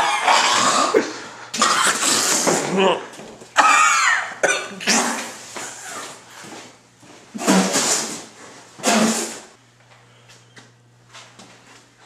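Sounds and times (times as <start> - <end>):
man spluttering and gagging: 0.0 - 6.0.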